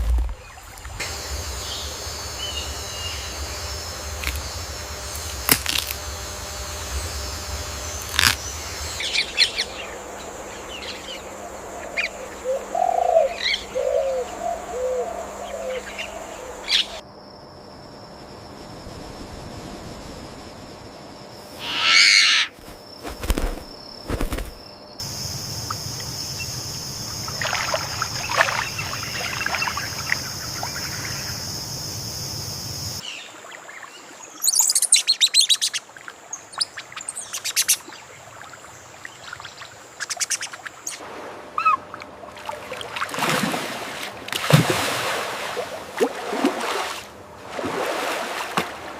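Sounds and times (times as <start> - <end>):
steady high whine: 0.0 - 17.0, 18.0 - 33.0
bird calls and chirps: 8.1 - 17.0, 33.0 - 38.0, 39.1 - 41.0
low animal calls: 21.6 - 22.5.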